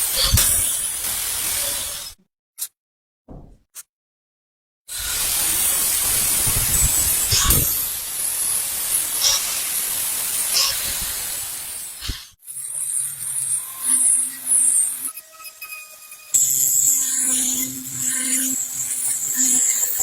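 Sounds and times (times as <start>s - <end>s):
hissing spray: 4.9s - 12.4s.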